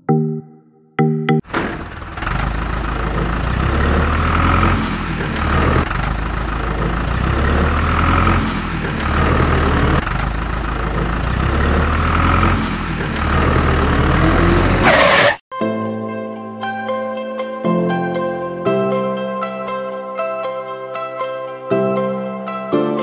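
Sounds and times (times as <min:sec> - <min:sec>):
engine rumbling: 0:01.4 - 0:15.4.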